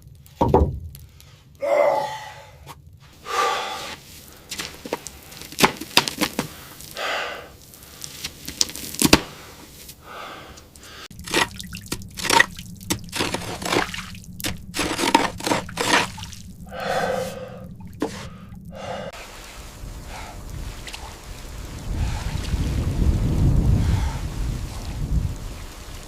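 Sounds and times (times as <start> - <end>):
small knocks: 0.4 - 1.1
person gasping breaths: 1.6 - 4.4, 6.5 - 8.1, 9.3 - 11.1, 16.7 - 19.2, 23.7 - 24.4
water drips: 10.5 - 26.0.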